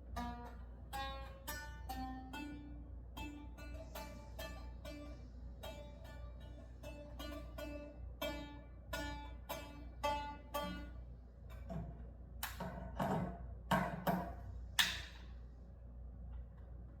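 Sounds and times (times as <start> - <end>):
plucked instrument notes: 0.1 - 11.8.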